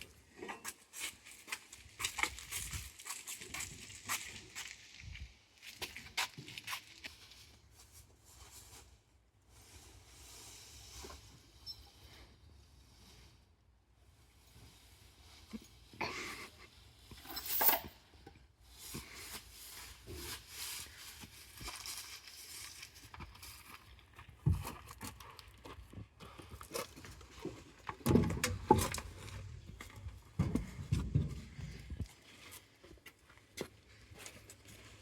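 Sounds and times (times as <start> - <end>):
tools knocking and clinking: 17.2 - 18.0.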